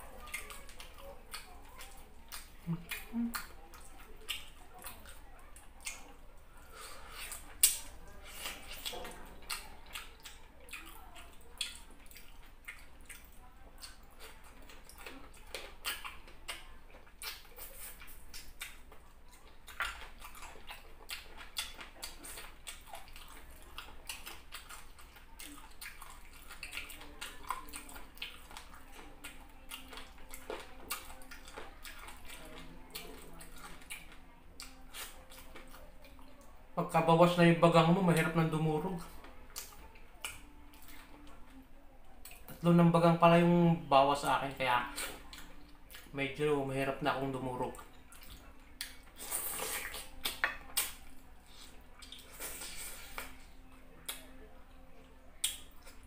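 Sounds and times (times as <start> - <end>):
chewing and wet mouth sounds: 0.0 - 56.0
lip smacks and clicks: 7.2 - 11.0, 14.6 - 19.0, 39.5 - 41.2, 47.7 - 54.8, 55.4 - 56.0.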